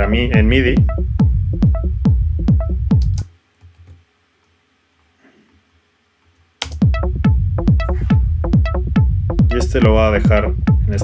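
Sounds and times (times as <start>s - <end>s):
techno loop: 0.0s - 3.2s, 6.6s - 11.0s.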